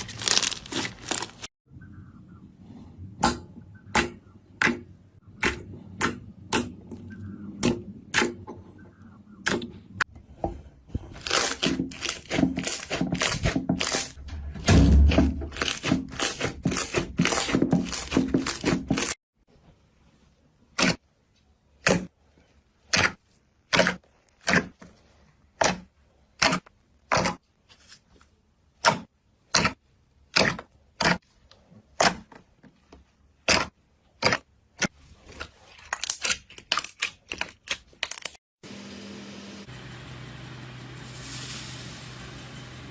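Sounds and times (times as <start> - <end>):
slime crackling: 0.0 - 1.5.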